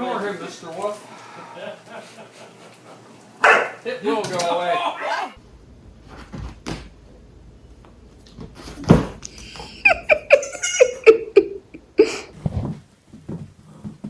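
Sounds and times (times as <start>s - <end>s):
person laughing: 9.2s - 12.3s.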